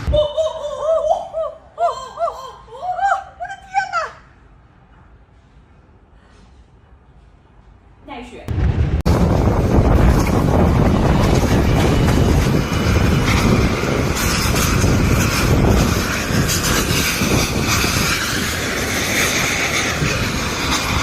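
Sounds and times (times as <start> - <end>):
strong wind gusts buffeting microphone: 8.5 - 21.0.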